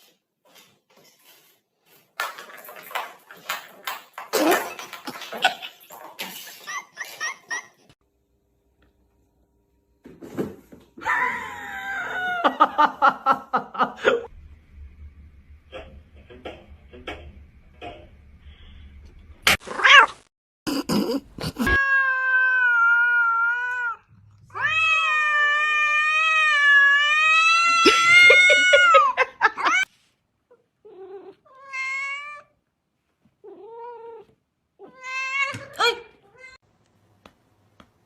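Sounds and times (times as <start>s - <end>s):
cat yowling: 21.7s - 29.9s.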